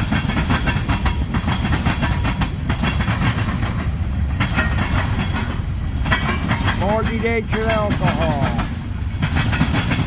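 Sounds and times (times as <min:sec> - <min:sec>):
train wheels rumbling on rail: 0:00.0 - 0:10.0
wheels clicking over rail joints: 0:00.0 - 0:10.0.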